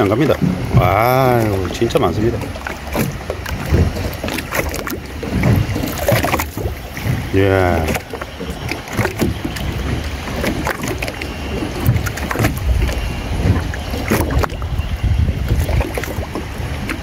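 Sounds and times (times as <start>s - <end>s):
small splashes and knocks: 0.0s - 17.0s
water sloshing against boat hull: 0.0s - 17.0s.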